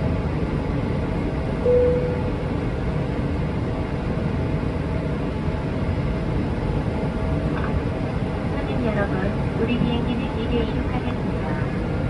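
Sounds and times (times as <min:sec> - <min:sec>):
airplane cabin rumble: 0:00.0 - 0:12.0
short steady tone: 0:01.6 - 0:02.6.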